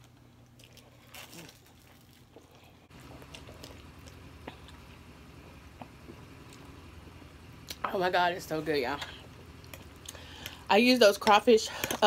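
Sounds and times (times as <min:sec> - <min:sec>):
chewing crunchy bread: 0:00.0 - 0:06.8, 0:09.0 - 0:10.7.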